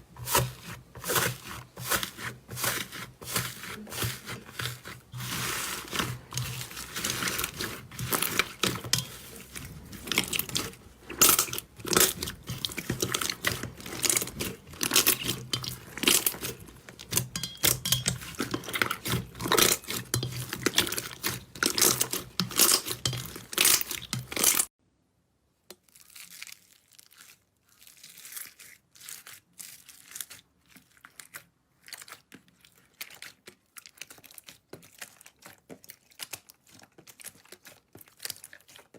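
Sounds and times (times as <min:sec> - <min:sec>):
slime crackling and popping: 0:01.1 - 0:24.7.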